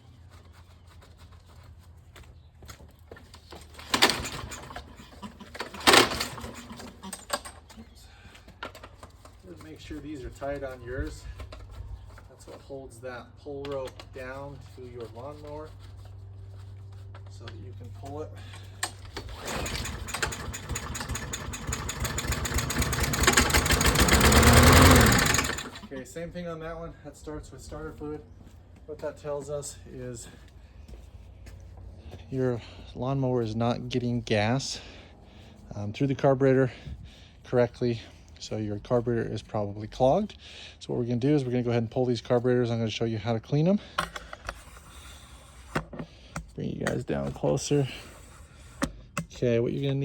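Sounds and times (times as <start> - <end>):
lawnmower engine running: 3.6 - 7.8, 18.6 - 26.0
ratchet clicking: 19.3 - 25.8.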